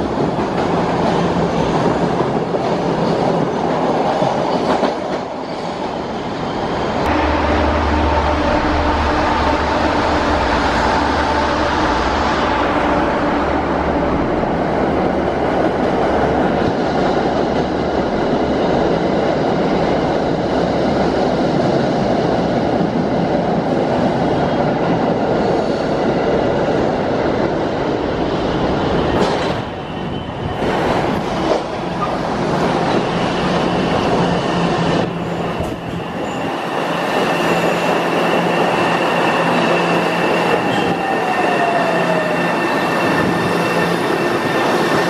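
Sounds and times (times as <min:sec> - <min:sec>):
steel wheels on rail: 0:24.2 - 0:45.0.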